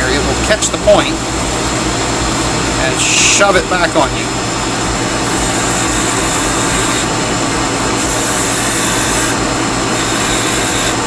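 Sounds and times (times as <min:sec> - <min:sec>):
wood lathe running: 0:00.0 - 0:11.0
hand file scraping wood: 0:05.3 - 0:07.1, 0:07.8 - 0:11.0.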